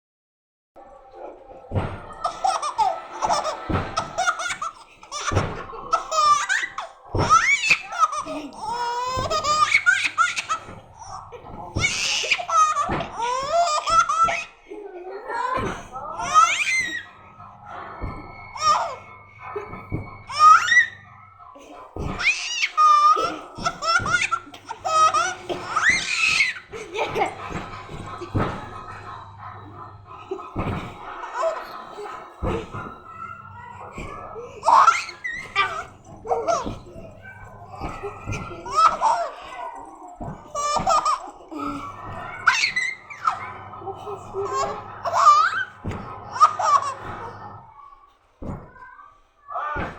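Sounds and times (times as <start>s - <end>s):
baby squealing: 2.2s - 11.2s, 15.4s - 17.3s, 17.9s - 28.9s, 31.4s - 43.5s, 44.1s - 47.1s
baby laughing: 2.2s - 17.3s, 17.9s - 21.0s, 21.6s - 47.3s
baby giggling and squealing: 31.4s - 47.1s.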